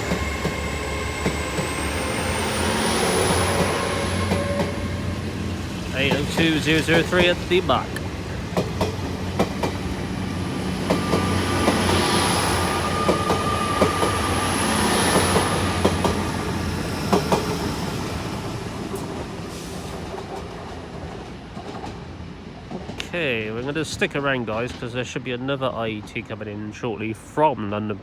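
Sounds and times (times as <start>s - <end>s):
train passing: 0.0s - 27.9s
wheels clicking over rail joints: 5.3s - 9.9s.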